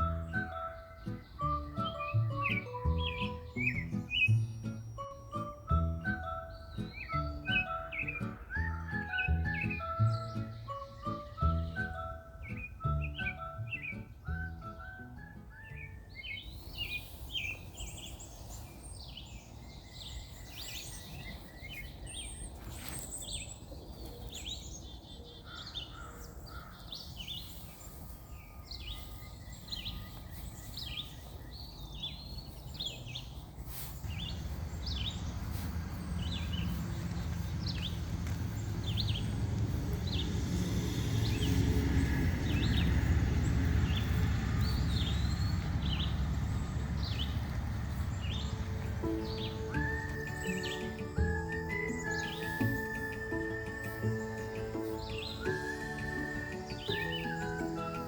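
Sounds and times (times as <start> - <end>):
small birds chirping: 0.0 - 58.0
low rumbling noise: 34.0 - 52.7.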